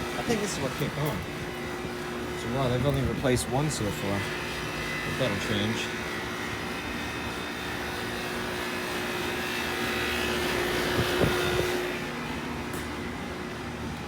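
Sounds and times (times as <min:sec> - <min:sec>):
air conditioner fan rush: 0:00.0 - 0:14.0.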